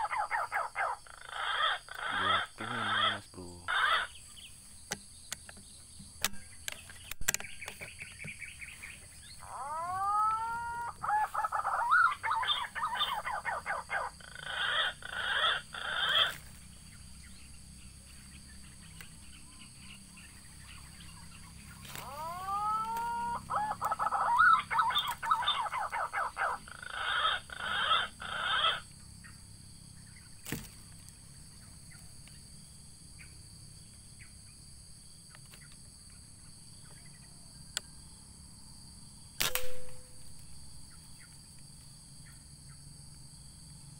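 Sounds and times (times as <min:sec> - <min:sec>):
high insect hum: 0:00.0 - 0:43.9
pigeon whistled song: 0:09.4 - 0:16.3, 0:22.0 - 0:28.8.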